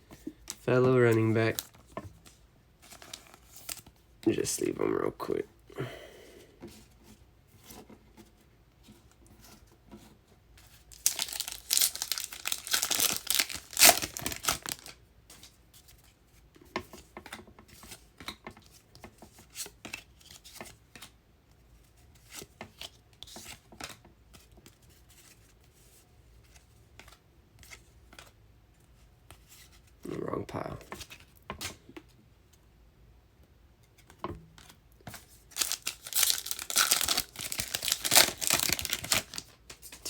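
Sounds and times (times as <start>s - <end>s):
card pack wrapper tearing: 0.5s - 1.8s, 2.9s - 3.9s, 10.9s - 15.0s, 35.5s - 40.0s.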